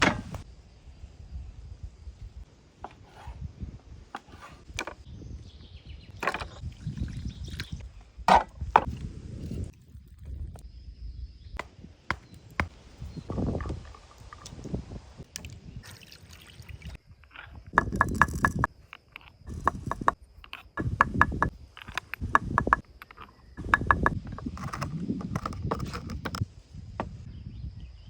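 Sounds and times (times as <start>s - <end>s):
wooden knocks and handling: 0.0s - 0.4s, 4.1s - 5.1s, 6.2s - 6.6s, 8.3s - 9.0s, 17.2s - 26.4s.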